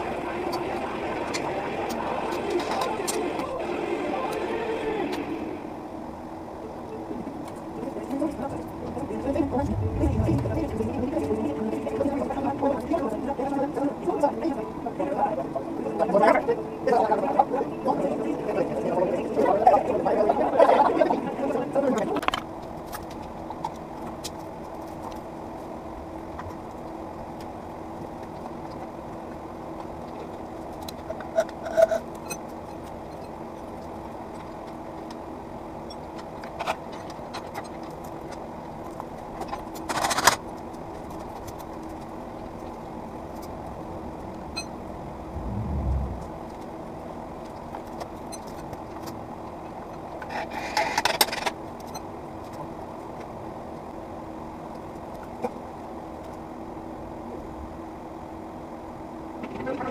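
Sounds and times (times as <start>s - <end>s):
steady hum: 0.0s - 35.8s, 40.6s - 49.5s.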